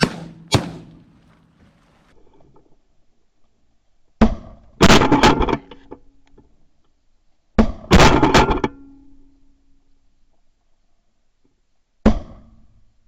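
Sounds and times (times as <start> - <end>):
shotgun shots: 0.0 - 2.0.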